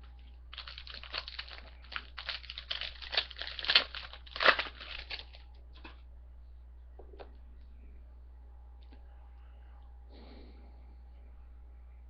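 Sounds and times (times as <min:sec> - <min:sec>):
wrapper tearing and crinkling: 0:00.5 - 0:05.4.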